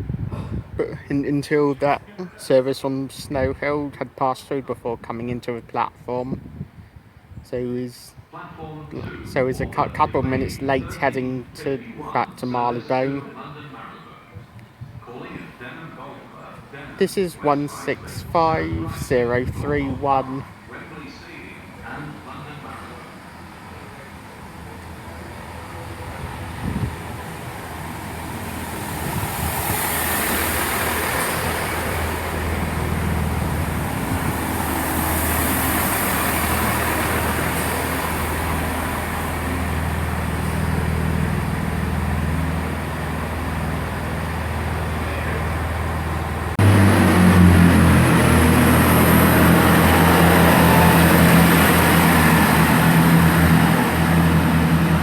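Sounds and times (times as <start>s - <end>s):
diesel train engines droning: 7.9s - 55.0s.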